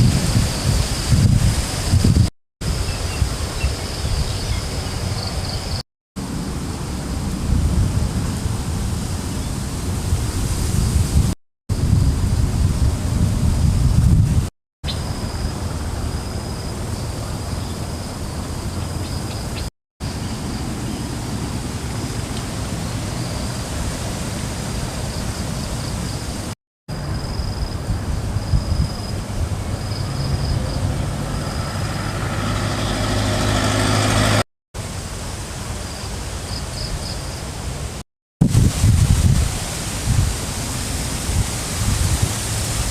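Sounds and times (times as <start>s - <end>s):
wind rushing over microphone: 0.0s - 17.1s, 21.3s - 34.4s, 38.4s - 42.9s
vehicle engine approaching: 29.2s - 34.4s.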